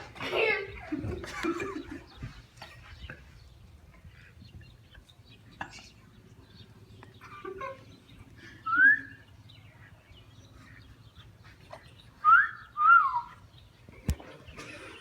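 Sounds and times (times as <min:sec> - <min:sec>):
person whistling: 0:08.7 - 0:09.1, 0:12.2 - 0:13.3.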